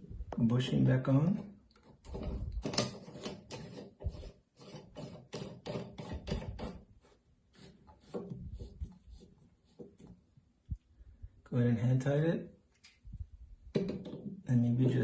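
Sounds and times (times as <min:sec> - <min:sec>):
faucet part scraping while screwed: 0:01.9 - 0:06.9.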